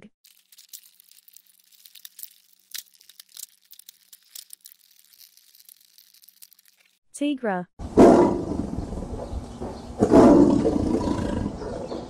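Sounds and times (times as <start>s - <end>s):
faint crackling and clicking: 0.2s - 7.0s.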